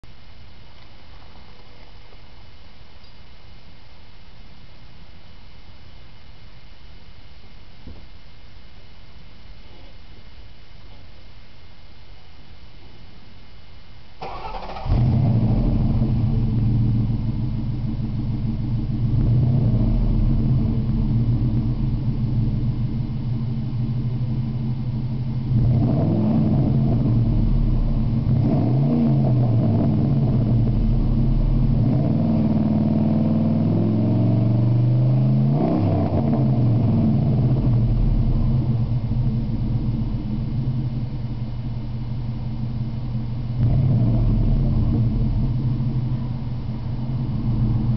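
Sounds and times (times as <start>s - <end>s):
truck engine idling and revving: 14.4s - 47.9s.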